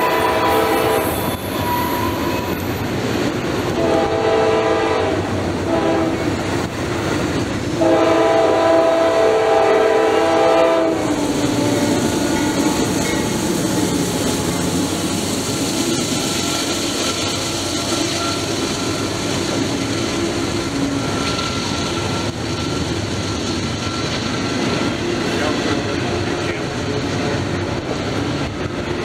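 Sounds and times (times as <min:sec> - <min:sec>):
locomotive horn chord: 0:00.0 - 0:01.2, 0:03.8 - 0:06.2, 0:07.8 - 0:12.9
freight cars rumbling on rails: 0:00.0 - 0:29.0.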